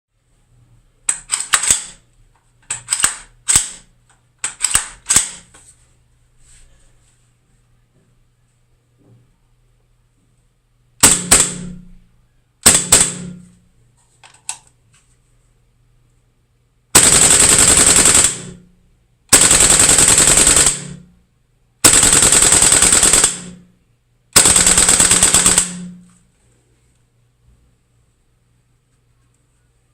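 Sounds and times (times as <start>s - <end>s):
airsoft rifle firing: 1.3s - 2.0s, 11.0s - 11.8s, 12.6s - 13.5s, 17.0s - 18.6s, 19.3s - 21.0s, 21.8s - 23.6s, 24.4s - 26.1s
full-auto bursts: 11.0s - 11.8s, 12.6s - 13.4s, 17.0s - 18.6s, 19.3s - 21.1s, 21.8s - 23.6s, 24.4s - 26.0s.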